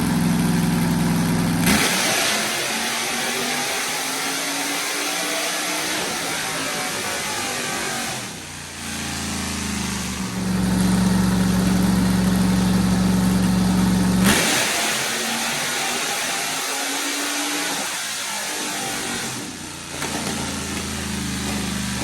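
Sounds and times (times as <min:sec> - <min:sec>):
car engine running: 0:00.0 - 0:01.8, 0:08.8 - 0:15.6.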